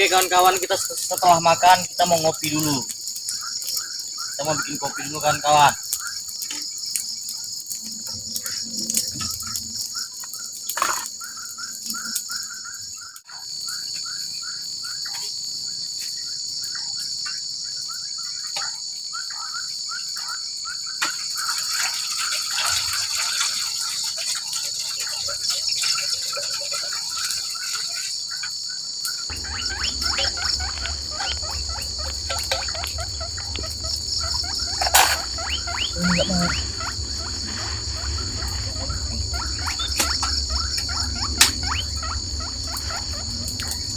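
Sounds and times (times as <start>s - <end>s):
fast pulsing insect call: 0.0s - 43.9s
insects chorus: 0.0s - 43.9s
low steady rumble: 29.3s - 43.9s.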